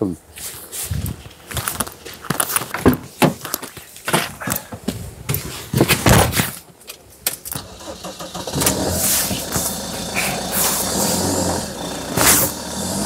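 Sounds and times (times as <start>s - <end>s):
vehicle engine starting and idling: 7.5s - 13.0s.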